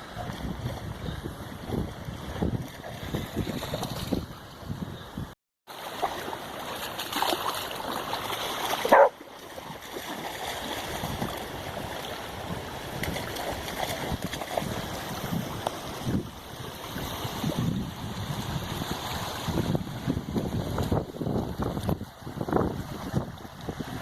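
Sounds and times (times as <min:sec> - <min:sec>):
wind buffeting microphone: 0:00.0 - 0:05.4, 0:10.9 - 0:24.0.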